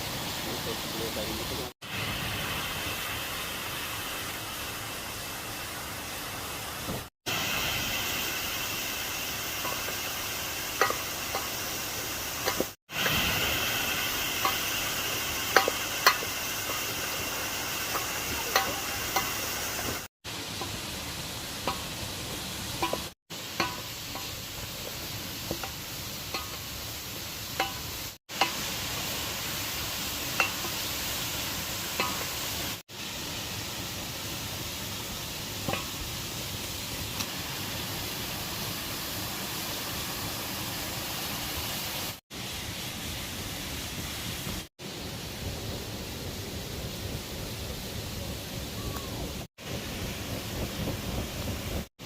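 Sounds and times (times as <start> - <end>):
utensil knocking cooking pot: 10.8 - 11.6, 12.4 - 12.8, 14.4 - 19.9, 21.6 - 22.0, 22.8 - 26.8, 27.5 - 28.7, 30.3 - 30.9, 31.9 - 32.3, 35.6 - 36.0.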